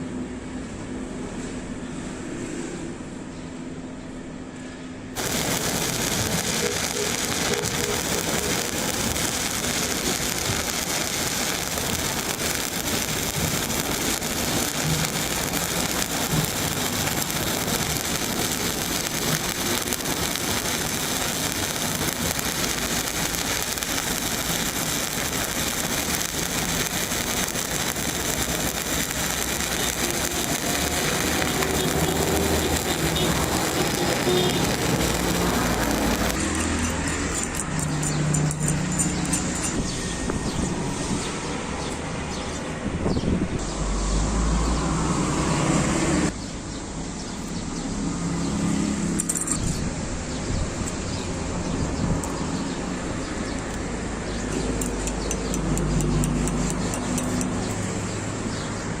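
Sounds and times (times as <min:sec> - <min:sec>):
welding arc crackling: 0:05.2 - 0:42.6, 0:52.1 - 0:59.0.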